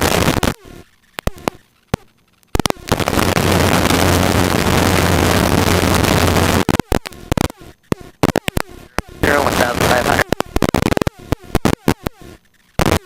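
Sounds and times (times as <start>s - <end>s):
intercom clicks: 6.6s - 12.2s.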